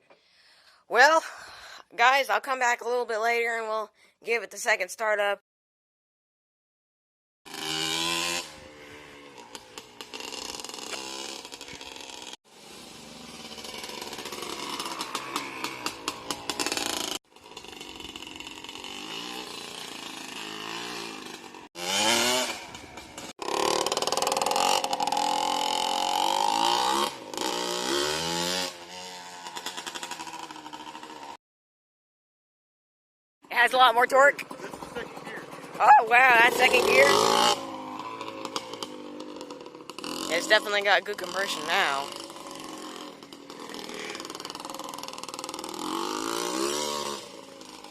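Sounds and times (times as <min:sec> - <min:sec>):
two-stroke engine revving: 0:07.5 - 0:31.4, 0:33.6 - 0:47.9.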